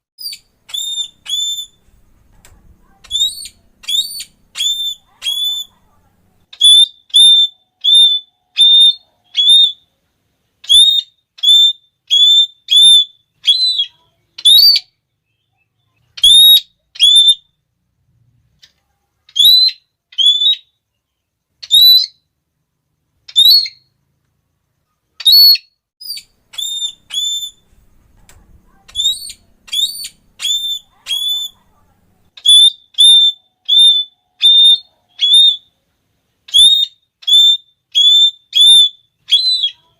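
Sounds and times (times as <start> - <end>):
parrot shrill call: 0.2 - 1.8, 3.0 - 5.8, 6.5 - 9.9, 10.6 - 15.0, 16.2 - 17.6, 19.3 - 20.8, 21.6 - 22.3, 23.3 - 23.9, 25.2 - 27.8, 28.7 - 31.6, 32.4 - 35.8, 36.5 - 39.9.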